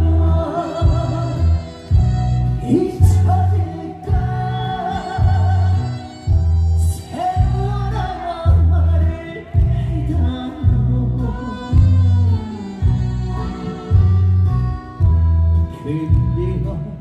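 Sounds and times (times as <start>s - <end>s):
crowd singing together: 0.0s - 12.0s
amplified backing music: 0.0s - 17.0s
heavy bass beat: 0.0s - 17.0s.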